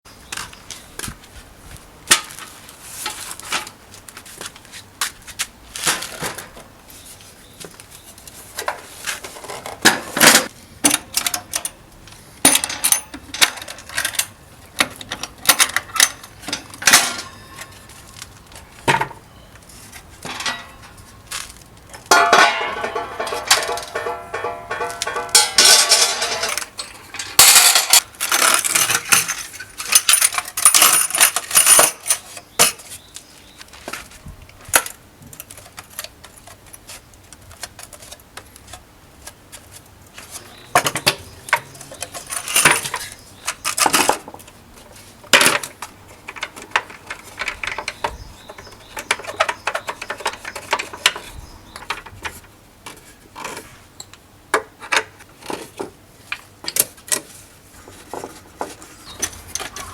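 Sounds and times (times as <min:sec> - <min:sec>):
metal pieces clinking and clattering: 0:22.1 - 0:32.2.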